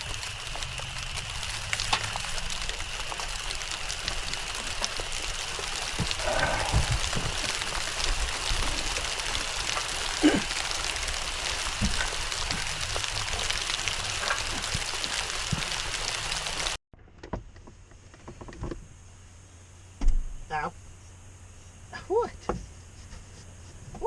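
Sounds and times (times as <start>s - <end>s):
heavy rain: 0.0s - 16.8s.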